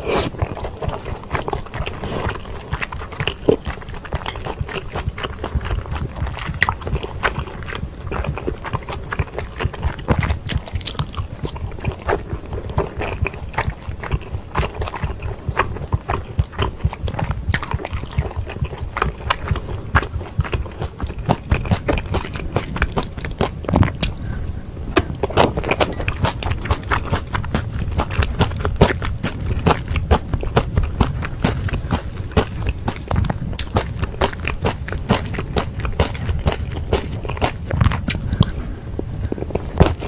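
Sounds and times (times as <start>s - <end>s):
close-miked chewing noodles: 0.0s - 40.0s
wet mouth clicks and smacks: 25.0s - 40.0s.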